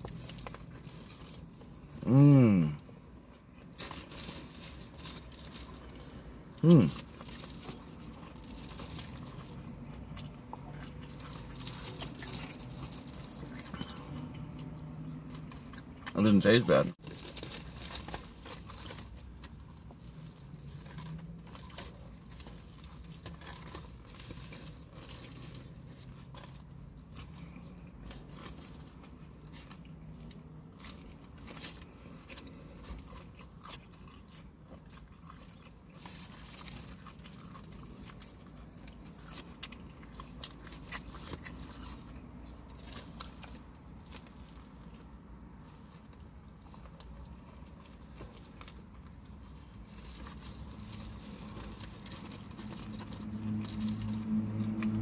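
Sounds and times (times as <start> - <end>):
crunchy chewing and biting: 0.0 - 55.0.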